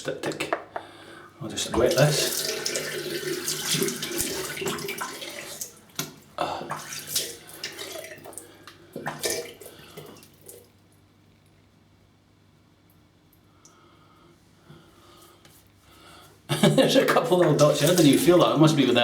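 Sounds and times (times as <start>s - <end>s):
tap water splashing into sink: 1.7s - 10.7s, 17.0s - 18.6s.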